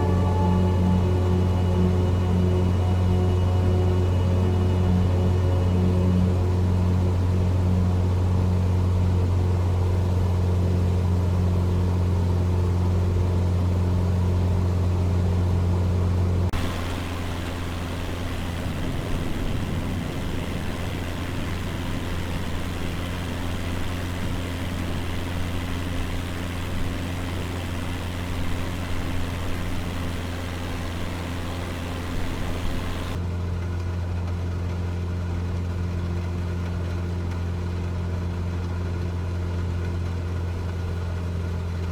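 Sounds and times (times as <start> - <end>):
propeller plane engine droning: 0.0 - 33.3.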